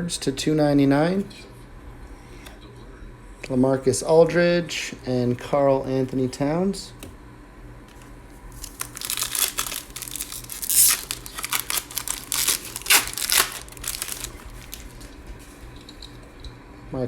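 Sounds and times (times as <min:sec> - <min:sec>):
plastic wrapper crinkling and tearing: 0:07.9 - 0:15.7.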